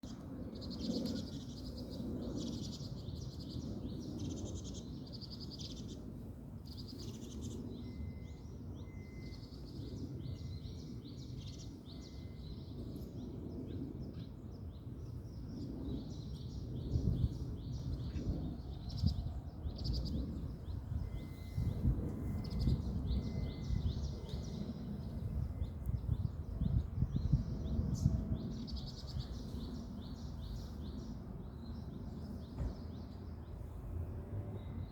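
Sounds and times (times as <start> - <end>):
small birds chirping: 22.4 - 33.3.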